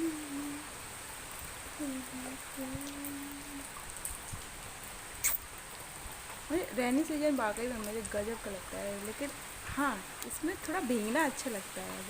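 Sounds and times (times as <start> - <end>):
light rain pattering: 0.0 - 12.0.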